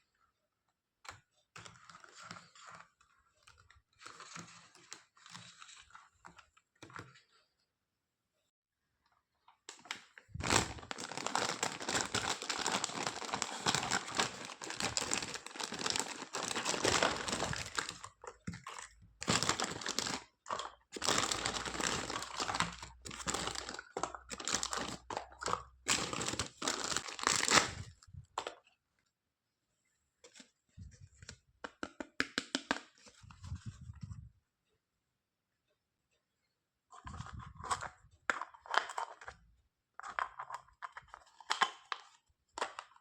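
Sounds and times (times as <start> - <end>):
packaging crinkling and rustling: 9.7 - 28.4.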